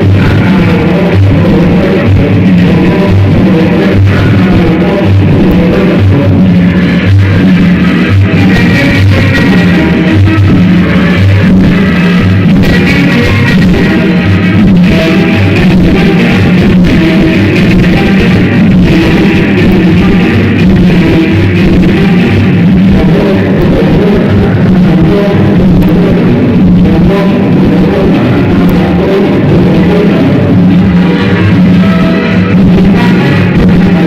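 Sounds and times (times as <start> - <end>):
loud dance music: 0.0 - 34.0
pulsing bass line: 0.0 - 34.0.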